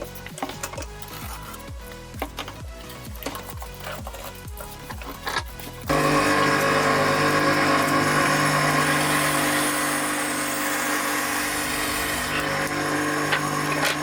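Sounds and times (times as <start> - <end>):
bandsaw running: 4.6 - 14.0.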